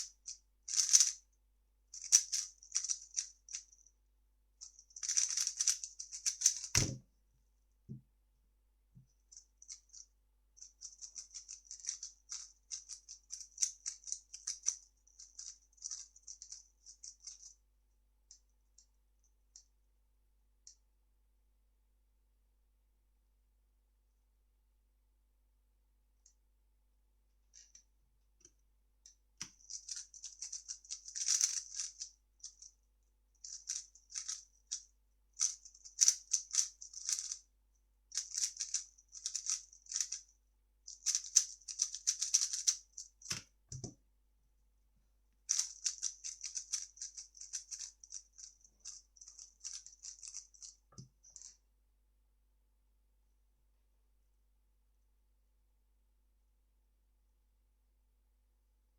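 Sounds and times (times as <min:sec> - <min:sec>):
puzzle cube clicking: 0:29.4 - 0:31.9, 0:41.0 - 0:43.9.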